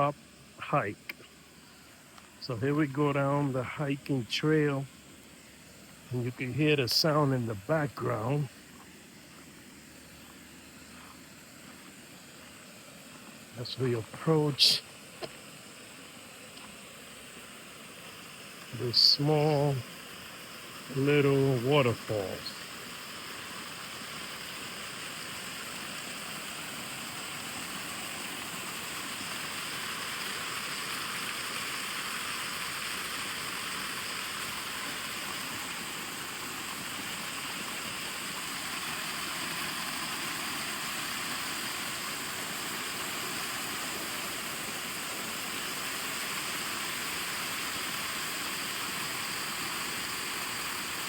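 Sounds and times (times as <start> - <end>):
water pouring over spillway: 16.1 - 51.0.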